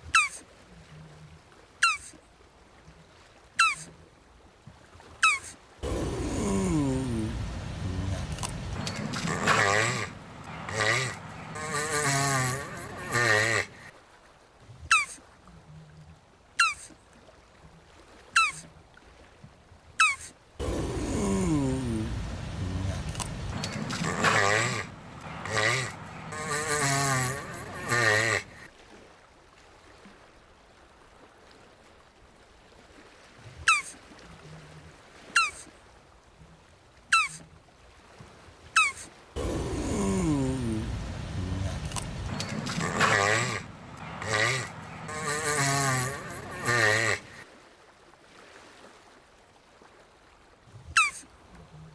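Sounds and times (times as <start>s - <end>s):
tortoise squeaky calls: 1.8s - 2.1s, 3.6s - 3.9s, 5.2s - 6.5s, 14.9s - 15.2s, 16.6s - 16.9s, 18.4s - 18.6s, 20.0s - 28.6s, 33.7s - 33.9s, 35.4s - 35.7s, 37.1s - 37.4s, 38.8s - 40.1s, 51.0s - 51.2s
tortoise groaning call: 3.6s - 3.9s, 5.2s - 13.9s, 20.0s - 28.7s, 38.8s - 47.4s, 50.9s - 51.2s.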